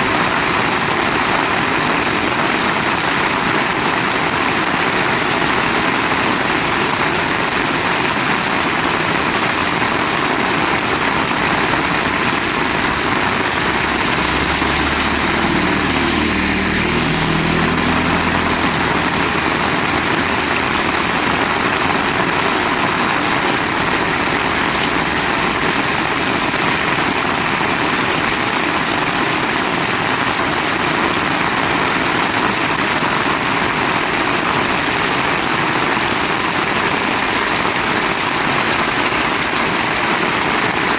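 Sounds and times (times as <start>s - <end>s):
heavy rain falling: 0.0s - 40.9s
low engine hum: 10.4s - 28.6s.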